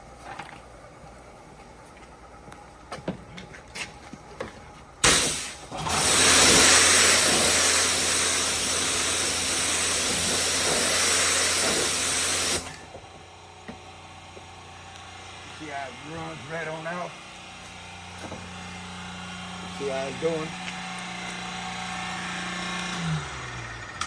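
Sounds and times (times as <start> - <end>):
water spraying onto car: 5.0 - 12.9.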